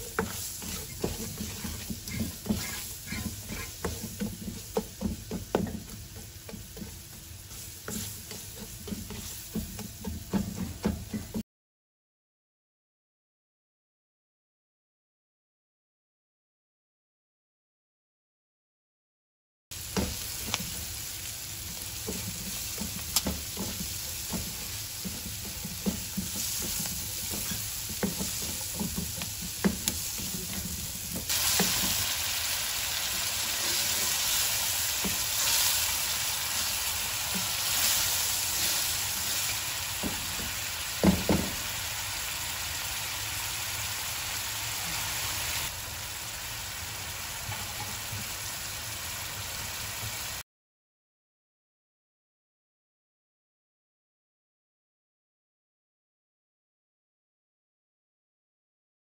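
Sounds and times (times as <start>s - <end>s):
onions sizzling in frying pan: 0.0s - 11.4s, 19.7s - 50.4s
spatula knocking against pan: 0.1s - 11.4s, 22.1s - 31.7s.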